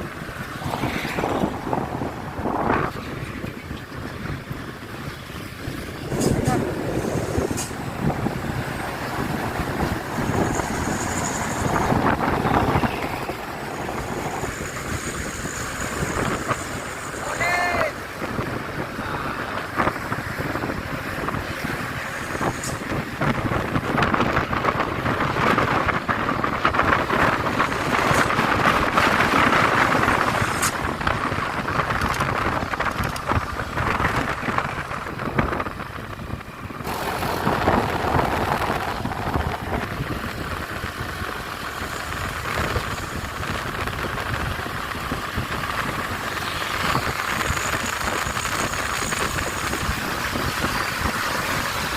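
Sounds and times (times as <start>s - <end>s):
truck engine rumble: 0.0s - 51.9s.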